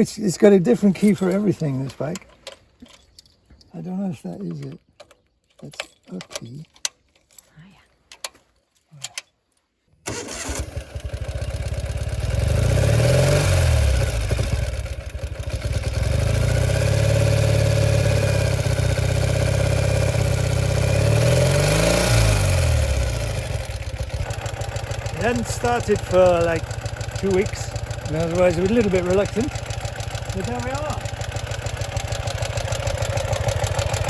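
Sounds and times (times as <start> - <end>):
motorcycle engine starting and revving: 10.1 - 34.0.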